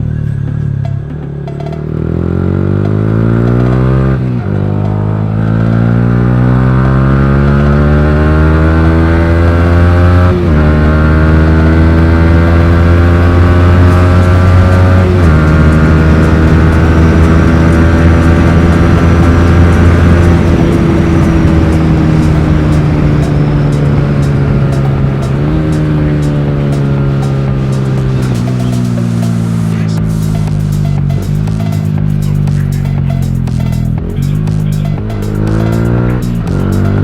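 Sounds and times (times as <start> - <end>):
motorcycle engine accelerating hard: 0.0 - 37.0.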